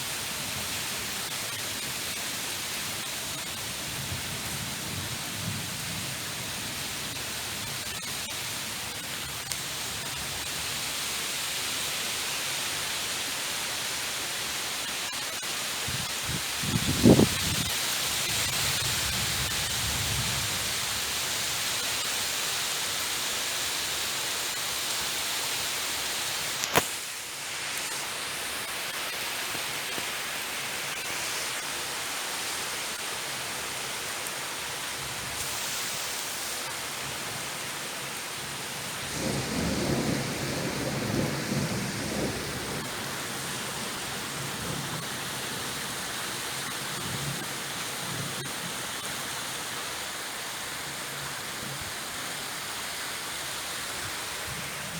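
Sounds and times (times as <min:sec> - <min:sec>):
rain hissing: 0:00.0 - 0:54.9
thunder rumbling: 0:39.0 - 0:45.1
sharp thunder crack: 0:39.1 - 0:43.0.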